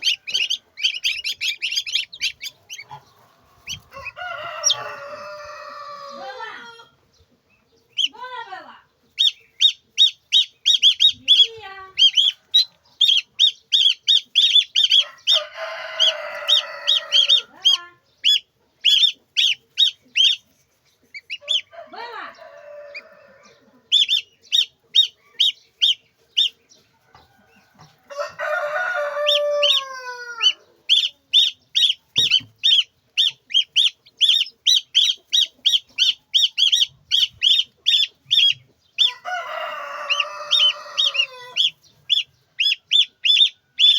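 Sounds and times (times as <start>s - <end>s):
chicks peeping: 0.0s - 43.9s
rooster crowing: 3.4s - 6.4s, 14.9s - 17.6s, 21.4s - 23.9s, 27.2s - 30.7s, 39.0s - 41.7s.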